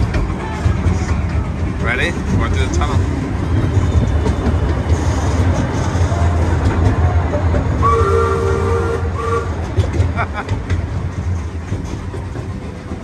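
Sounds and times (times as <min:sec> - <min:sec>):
ride train rumbling: 0:00.0 - 0:13.0
train horn chord: 0:07.8 - 0:09.6.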